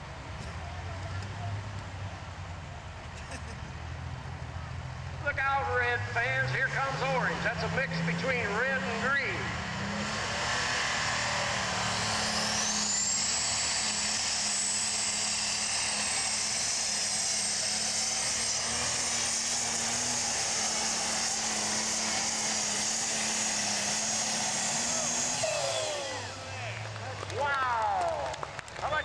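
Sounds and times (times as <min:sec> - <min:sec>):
high turbo whine: 0:00.0 - 0:29.0
tractor engine running flat out: 0:10.5 - 0:29.0.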